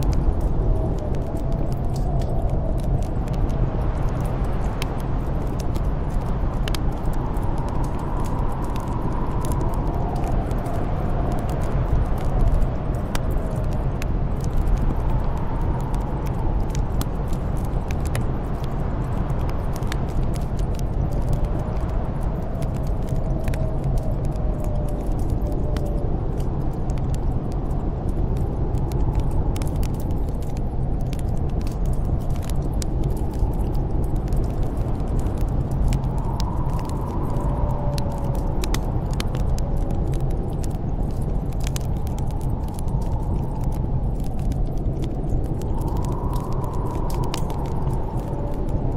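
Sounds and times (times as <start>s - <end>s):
snowstorm wind blowing: 0.0s - 48.9s
wood fire crackling and popping: 0.0s - 48.9s
faint wind whistle: 32.9s - 41.1s.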